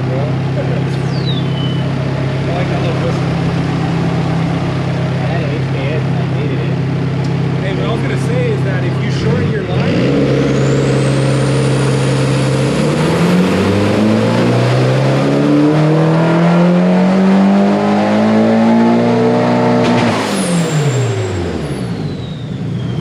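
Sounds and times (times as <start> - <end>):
car engine revving on dyno: 0.0 - 23.0.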